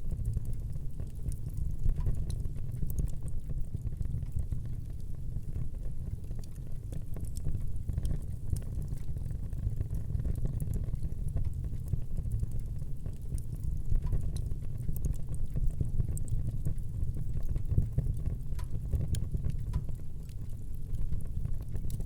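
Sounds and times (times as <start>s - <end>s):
low rumble of fire: 0.0s - 22.0s
wood fire crackling and popping: 0.0s - 22.0s.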